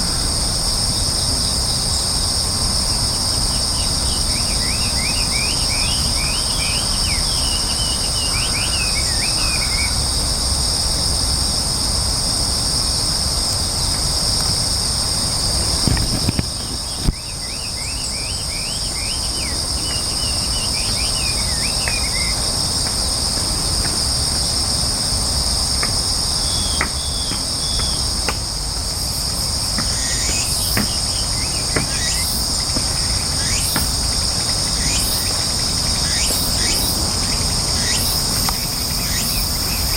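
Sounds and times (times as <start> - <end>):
insects shrilling drone: 0.0 - 39.9
birds chirping: 15.6 - 22.3.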